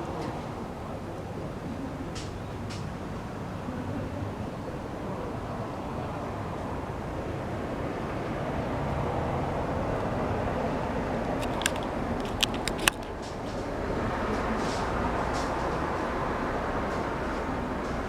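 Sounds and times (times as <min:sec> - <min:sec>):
outdoor background noise: 0:00.0 - 0:18.0
staple tacker clicks: 0:11.4 - 0:13.2.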